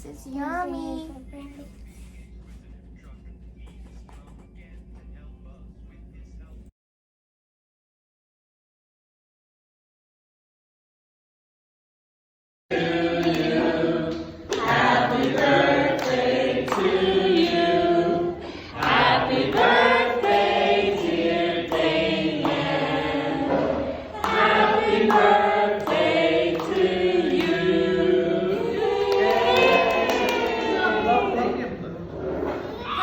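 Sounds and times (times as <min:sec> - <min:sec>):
choir-like singing: 0:12.7 - 0:31.6.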